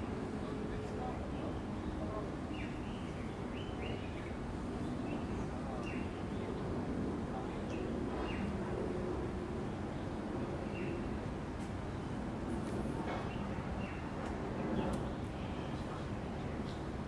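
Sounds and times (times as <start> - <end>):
outdoor zoo ambience: 0.0 - 17.0
birds chirping: 0.8 - 8.7.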